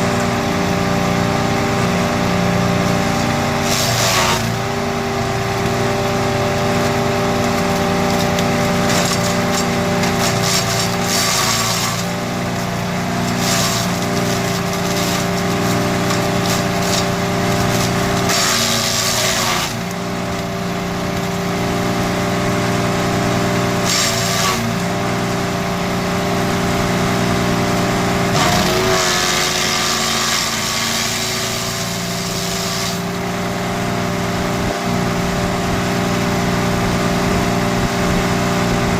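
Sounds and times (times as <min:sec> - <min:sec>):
wood chipper engine running: 0:00.0 - 0:38.9
wood being chipped: 0:02.9 - 0:21.5, 0:23.8 - 0:24.8, 0:28.3 - 0:33.1.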